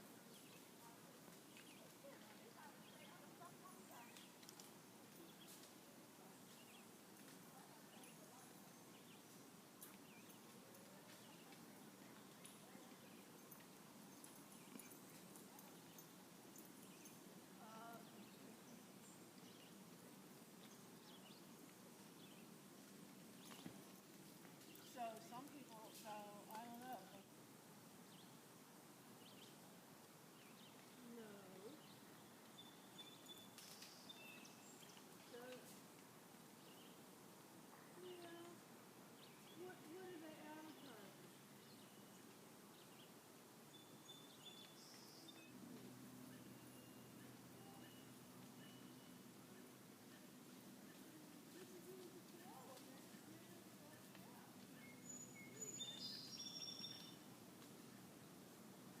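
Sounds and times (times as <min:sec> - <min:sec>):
soft steady hiss: 0:00.0 - 0:59.0
faint bird chirps: 0:43.7 - 0:52.8, 0:53.9 - 0:57.3
high bird chirps: 0:54.8 - 0:57.2.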